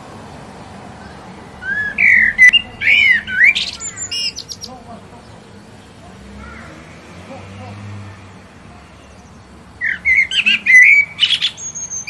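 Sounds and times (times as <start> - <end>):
bird singing whistled notes: 1.0 - 4.8, 9.8 - 12.0.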